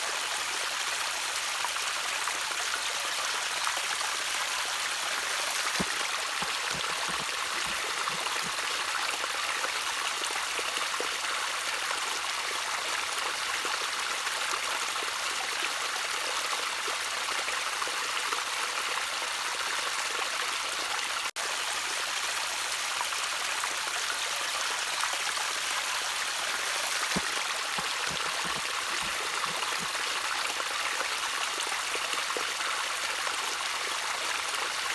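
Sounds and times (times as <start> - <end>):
stream trickling: 1.2 - 34.9.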